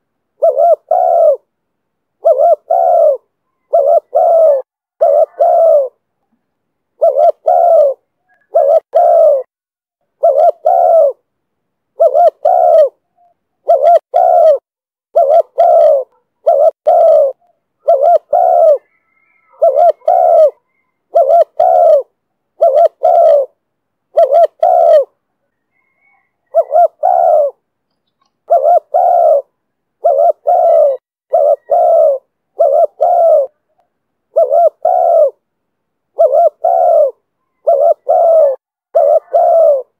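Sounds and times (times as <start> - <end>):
dove cooing: 0.0 - 1.5, 2.2 - 6.1, 7.0 - 9.5, 10.1 - 11.2, 11.9 - 35.4, 36.1 - 39.9.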